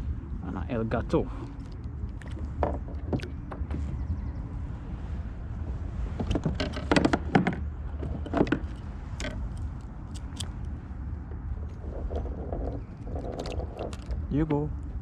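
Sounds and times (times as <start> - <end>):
wind on microphone: 0.0 - 15.0
fishing gear clicking and rattling: 1.4 - 3.7, 6.2 - 14.5.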